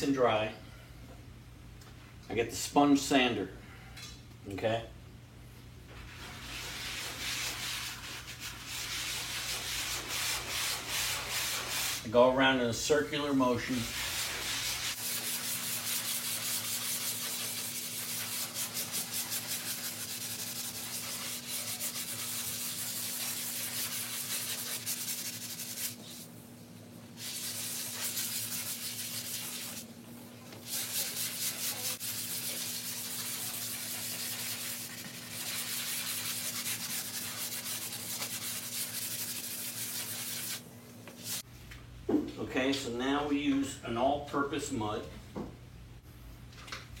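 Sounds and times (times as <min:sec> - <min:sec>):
sanding block scrubbing drywall: 0:06.0 - 0:12.1, 0:12.9 - 0:26.3, 0:27.2 - 0:29.9, 0:30.6 - 0:40.6, 0:41.2 - 0:41.5.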